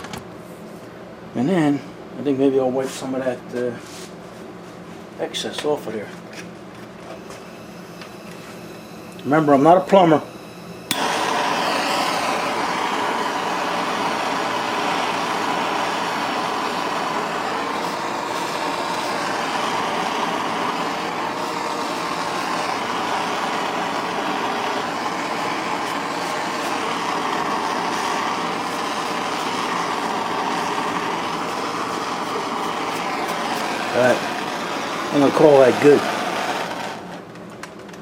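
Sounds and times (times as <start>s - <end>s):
gas torch hissing: 7.1s - 37.3s.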